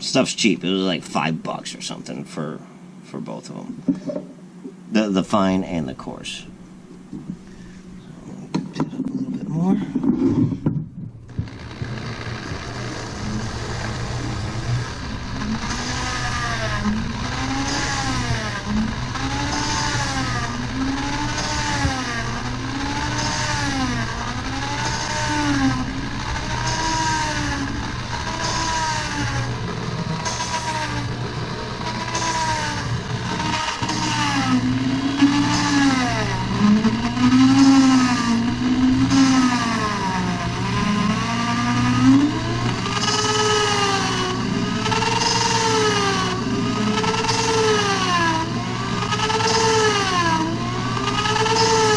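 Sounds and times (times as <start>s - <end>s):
electric drill motor: 11.3s - 51.9s
gritty grinding hiss: 11.3s - 51.9s.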